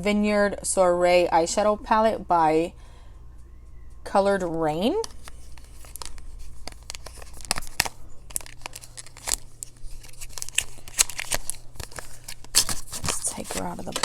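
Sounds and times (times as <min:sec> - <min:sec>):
packaging crinkling and ripping: 0:05.0 - 0:14.0.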